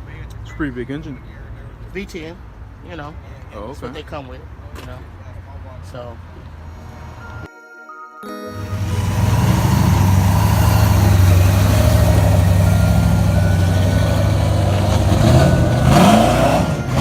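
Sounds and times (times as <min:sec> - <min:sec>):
engine revving: 0:08.6 - 0:17.0
engine idling with lumpy pulse: 0:08.7 - 0:17.0.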